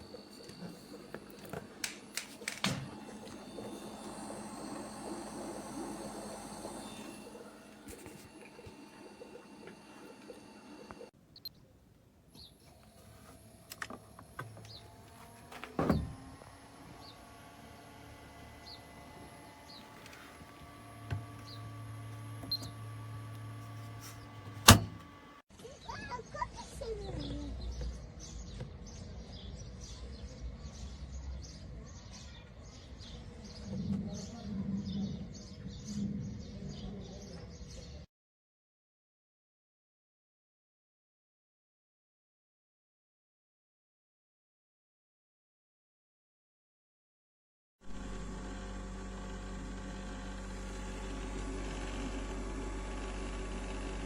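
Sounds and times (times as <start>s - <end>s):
cooler fan and electric hum: 0.0s - 11.1s, 12.4s - 25.4s, 47.9s - 54.0s
birds chirping: 0.0s - 38.0s.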